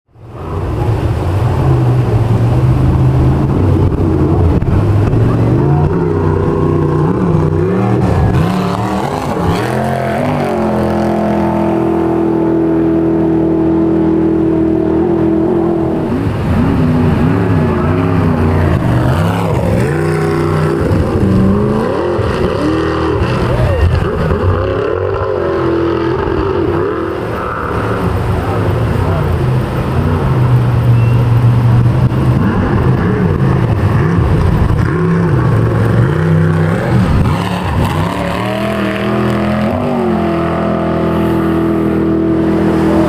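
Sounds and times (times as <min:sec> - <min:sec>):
engine revving: 0:00.4 - 0:43.0.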